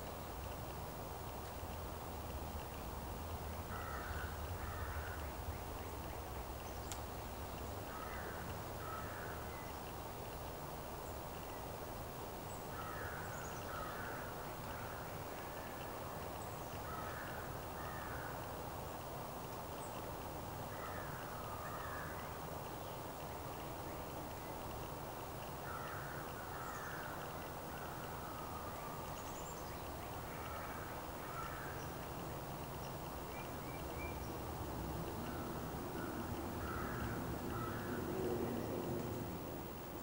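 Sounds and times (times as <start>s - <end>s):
bird calling: 35.2s - 39.3s.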